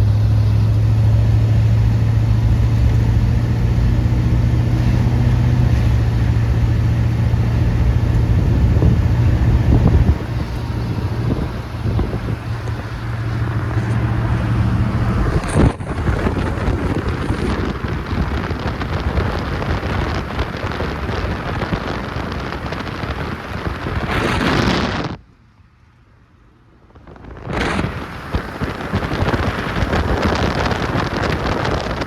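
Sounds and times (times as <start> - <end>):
low hum: 0.0 - 20.6
wind buffeting microphone: 0.0 - 25.2, 26.8 - 32.0.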